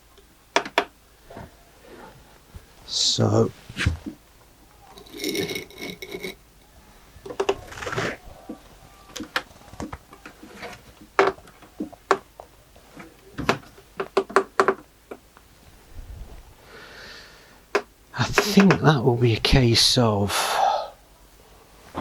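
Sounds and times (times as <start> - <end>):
pieces knocking on wood: 8.5 - 12.3.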